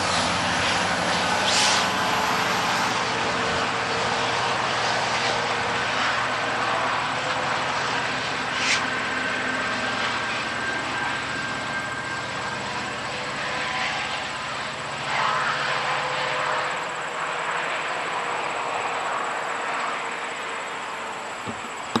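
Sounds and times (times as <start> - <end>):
low engine hum: 0.0 - 22.0
train wheels on rails: 21.4 - 22.0.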